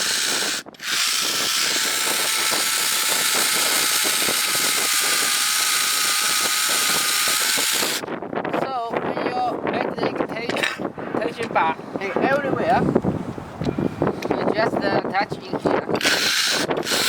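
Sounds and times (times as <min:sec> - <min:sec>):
electric chainsaw running: 0:00.0 - 0:08.1, 0:16.0 - 0:17.0.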